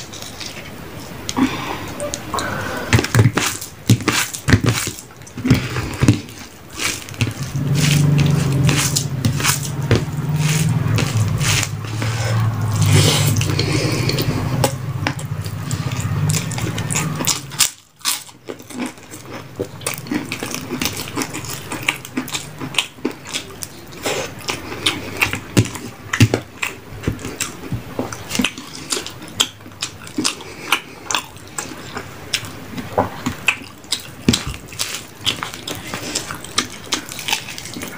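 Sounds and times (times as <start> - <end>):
wet chewing: 2.4 - 37.9
low hum: 7.2 - 17.8.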